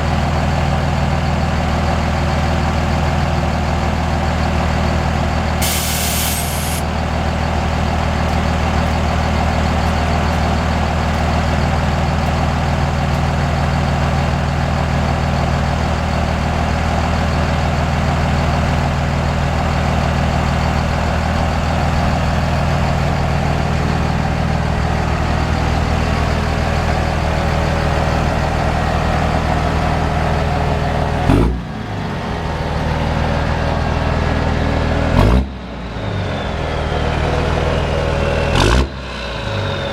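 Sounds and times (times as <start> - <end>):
diesel engine idling: 0.0 - 39.9
short hiss: 5.6 - 6.8.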